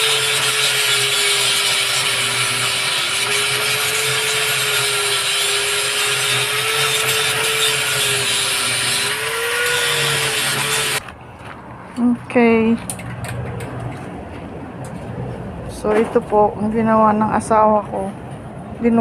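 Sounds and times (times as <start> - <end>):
electric power tool whine: 0.0 - 11.0.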